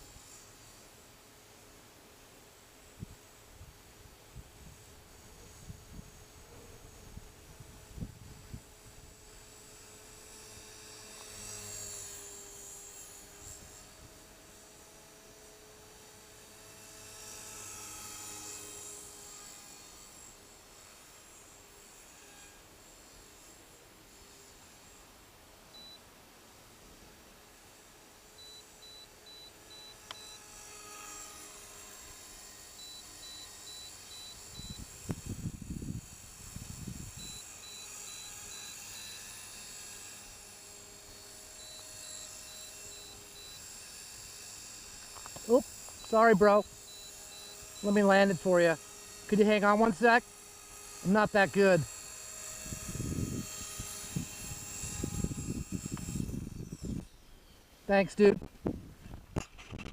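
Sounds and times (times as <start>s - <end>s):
rc helicopter whine: 0.0s - 59.9s
faint high beeps: 25.7s - 26.0s, 28.4s - 30.4s, 32.8s - 34.9s, 41.6s - 43.6s, 45.5s - 48.2s.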